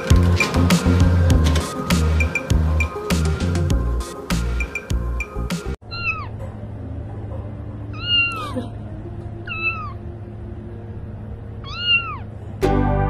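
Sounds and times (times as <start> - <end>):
kitten meowing: 5.9 - 6.3, 7.9 - 8.4, 9.5 - 10.0, 11.6 - 12.3.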